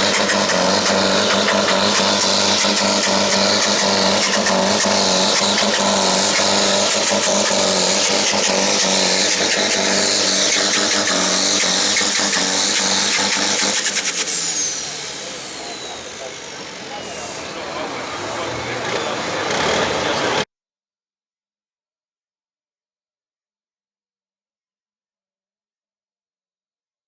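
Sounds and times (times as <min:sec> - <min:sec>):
tractor diesel engine at full load: 0:00.0 - 0:20.5
high wavering whistle: 0:04.2 - 0:19.2.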